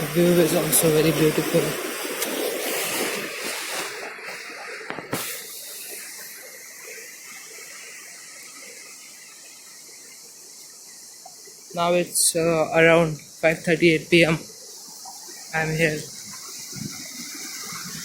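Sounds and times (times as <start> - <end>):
water rushing over dam: 0.0 - 9.6.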